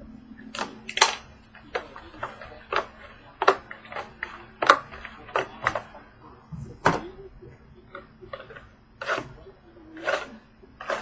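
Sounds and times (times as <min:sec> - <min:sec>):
trading cards clicking and snapping: 0:00.5 - 0:05.9.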